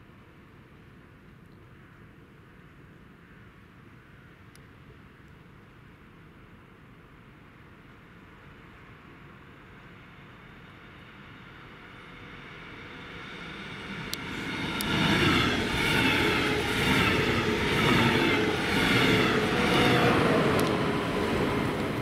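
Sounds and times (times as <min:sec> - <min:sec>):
train passing through station: 0:06.0 - 0:22.0.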